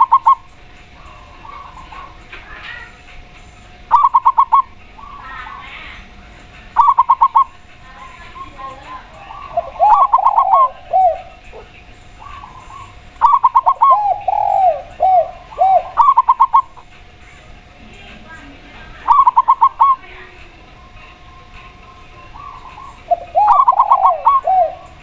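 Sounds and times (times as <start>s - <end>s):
dove drawn-out coos: 0.0s - 18.2s, 19.0s - 25.0s
dove quick clipped notes: 19.0s - 25.0s.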